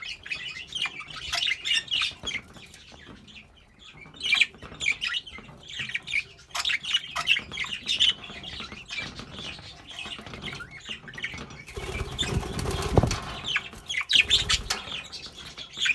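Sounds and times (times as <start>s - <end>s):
budgerigars chirping: 0.0s - 15.9s
wing flapping: 11.7s - 15.1s.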